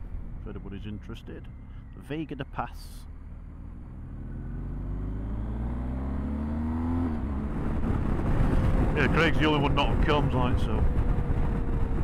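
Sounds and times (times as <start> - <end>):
motorcycle engine accelerating: 3.1 - 12.0.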